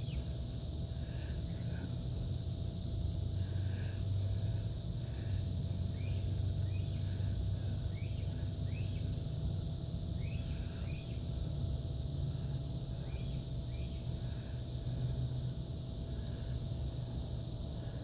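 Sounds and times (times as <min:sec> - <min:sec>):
small birds chirping: 0:00.0 - 0:02.0, 0:03.4 - 0:15.1
low outdoor rumble: 0:00.0 - 0:18.0.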